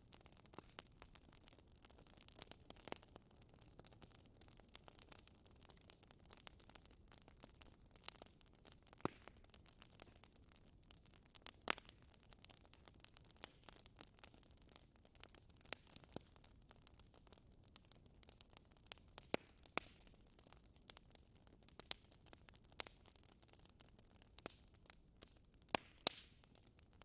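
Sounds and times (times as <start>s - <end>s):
wood fire crackling: 0.0s - 27.0s
fire pops: 4.8s - 10.4s, 19.2s - 20.9s, 25.2s - 27.0s.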